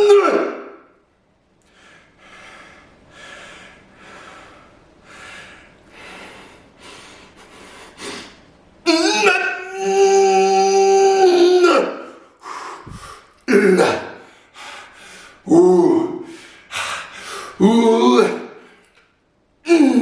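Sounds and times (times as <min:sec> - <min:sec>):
man yelling with strain: 0:00.0 - 0:00.5, 0:08.9 - 0:12.1, 0:17.6 - 0:18.4
man breathing hard: 0:01.6 - 0:08.4, 0:12.1 - 0:13.5, 0:14.1 - 0:15.5, 0:16.2 - 0:17.6.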